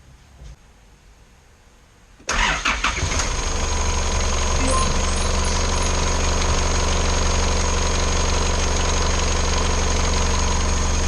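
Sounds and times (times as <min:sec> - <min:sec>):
diesel engine idling: 0:02.4 - 0:11.0.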